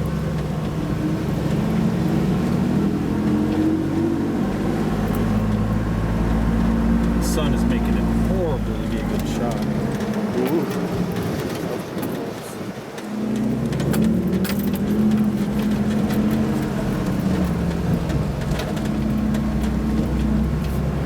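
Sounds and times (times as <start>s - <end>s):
car engine pulling uphill: 0.0s - 21.0s
sharp clicks and rattles: 4.9s - 21.0s.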